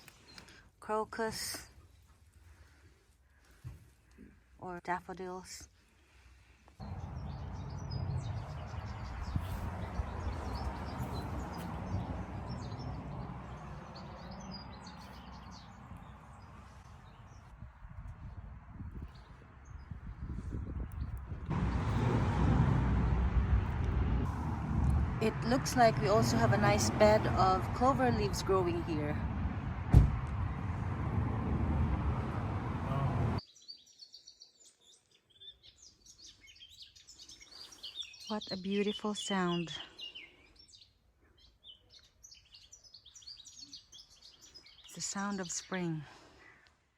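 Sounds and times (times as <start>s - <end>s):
loud low rushing noise: 6.8s - 16.8s, 21.2s - 33.4s
low rumble: 6.8s - 19.1s, 19.8s - 33.4s
small birds chirping: 6.8s - 22.0s, 32.9s - 46.9s.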